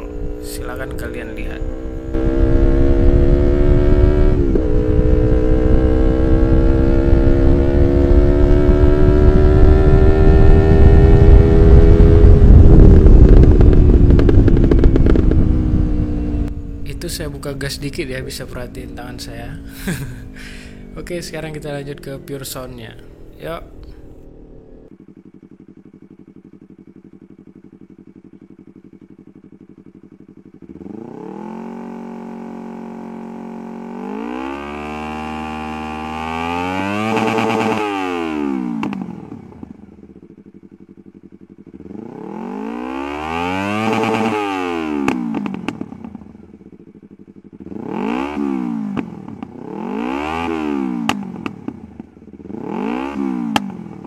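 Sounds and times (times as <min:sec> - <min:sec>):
motorcycle engine revving: 0:00.0 - 0:54.0
exhaust cracks: 0:10.7 - 0:29.6.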